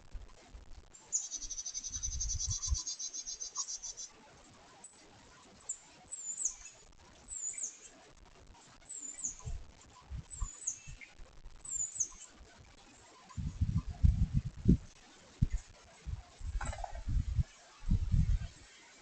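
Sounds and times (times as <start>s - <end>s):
small bird high sharp chirps: 1.1s - 4.1s, 5.7s - 7.9s, 10.3s - 12.3s.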